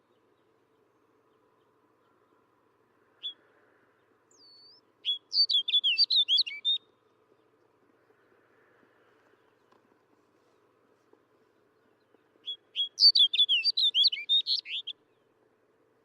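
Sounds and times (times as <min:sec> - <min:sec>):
bird singing: 0:03.2 - 0:08.3, 0:11.5 - 0:15.4.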